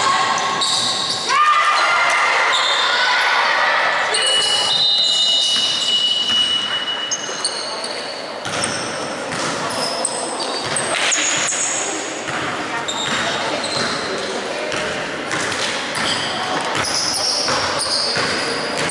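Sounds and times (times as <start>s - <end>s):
echoing voices: 0.0s - 18.9s
sneakers squeaking on court: 0.3s - 1.3s, 4.1s - 18.9s
basketball bouncing: 12.3s - 14.0s.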